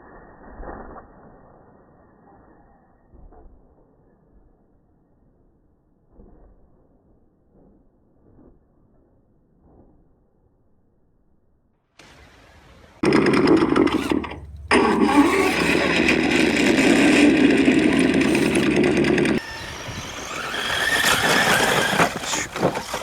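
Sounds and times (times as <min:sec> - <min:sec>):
model vehicle motor whining: 0:13.0 - 0:23.0.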